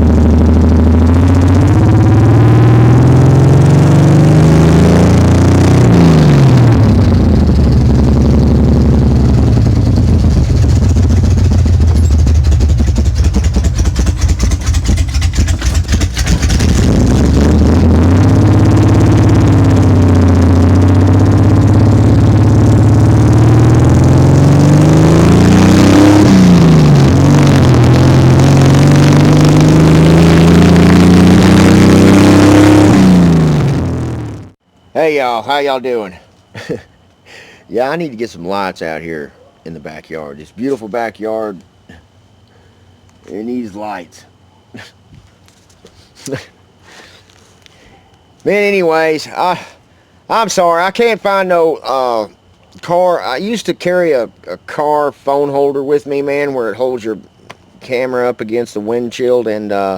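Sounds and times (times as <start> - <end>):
truck engine accelerating: 0.0 - 34.6.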